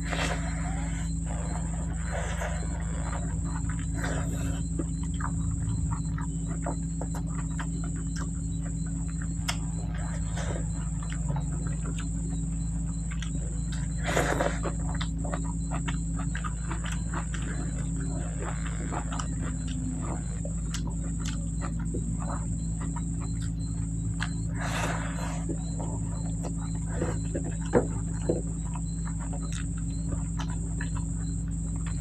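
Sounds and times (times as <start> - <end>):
fingers squishing food: 0.0 - 32.0
high whine: 0.0 - 32.0
low hum: 0.0 - 32.0
wet chewing and lip smacks: 0.0 - 32.0.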